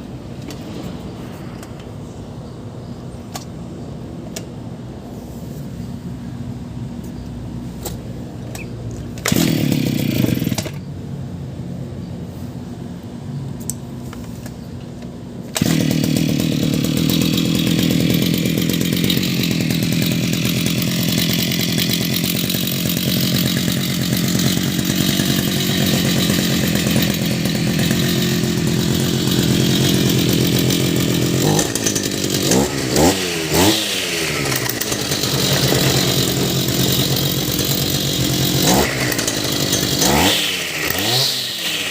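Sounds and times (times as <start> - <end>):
brush cutter engine revving: 8.6 - 10.9, 15.4 - 41.9.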